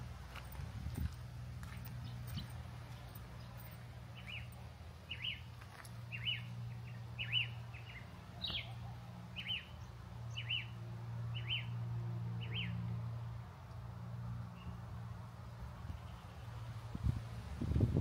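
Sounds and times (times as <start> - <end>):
bird chirping: 2.0 - 5.5, 6.1 - 11.8.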